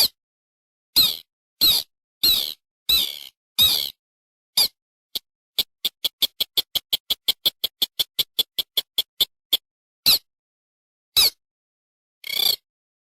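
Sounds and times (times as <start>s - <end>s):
bird call high ticking notes: 5.6s - 10.2s.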